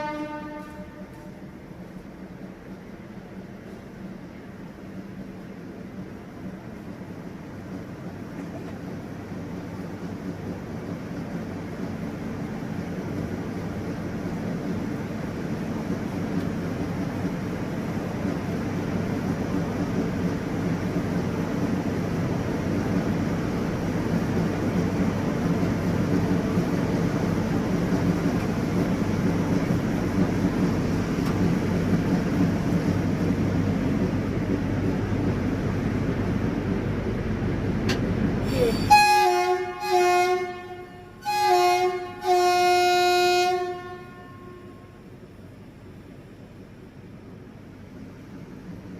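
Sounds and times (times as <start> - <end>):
locomotive horn blasts: 0.0 - 1.5, 38.6 - 45.0
electric train rumbling: 0.0 - 48.9.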